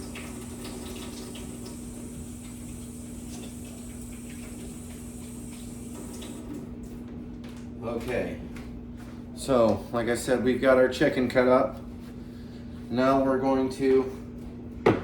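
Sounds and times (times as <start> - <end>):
hands being washed: 0.0 - 6.5
tap running: 0.0 - 6.7.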